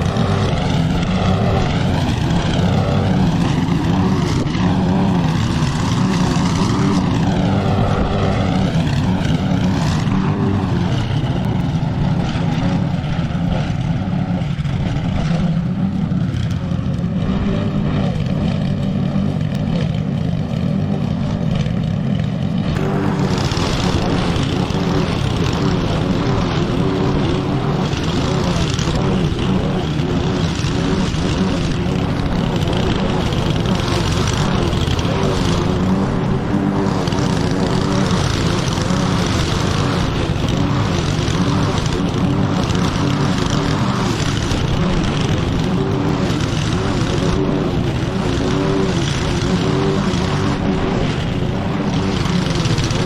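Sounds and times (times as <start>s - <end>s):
lawn mower engine running: 0.0s - 53.0s.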